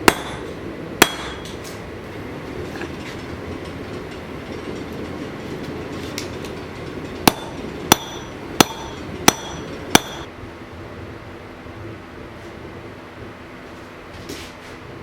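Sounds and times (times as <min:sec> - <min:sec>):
hammer striking steel on anvil: 0:00.0 - 0:01.6, 0:07.2 - 0:10.3
steady rushing noise: 0:00.0 - 0:15.0.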